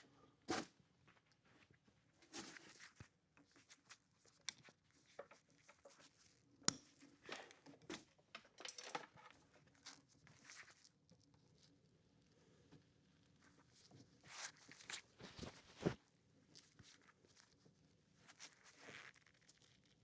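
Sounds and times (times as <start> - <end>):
rustling and scraping: 13.8 - 17.6.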